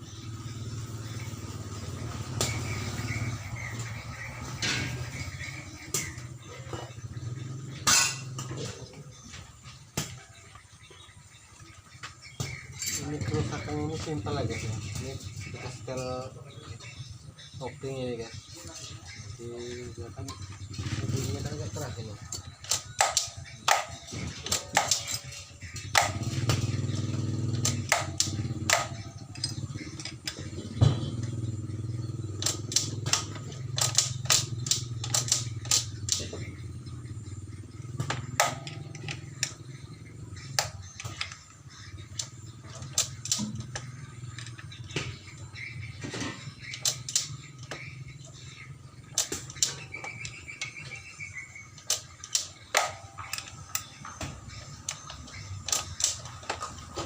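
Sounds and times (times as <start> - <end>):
motorcycle engine running: 0.0 - 57.0
sharp metallic clicks and knocks: 20.2 - 37.1, 37.8 - 57.0.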